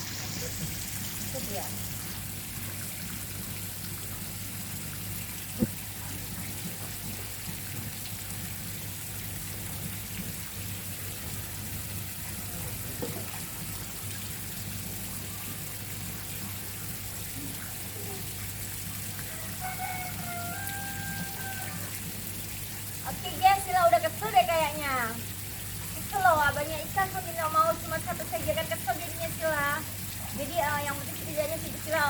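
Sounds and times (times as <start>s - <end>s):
water trickling and splashing: 0.0s - 32.0s.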